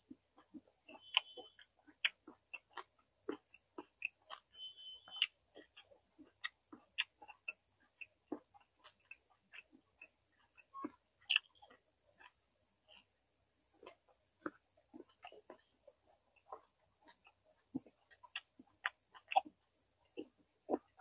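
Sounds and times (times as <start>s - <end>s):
chewing with wet mouth smacks: 0.1s - 4.5s, 5.1s - 13.2s, 13.8s - 21.0s.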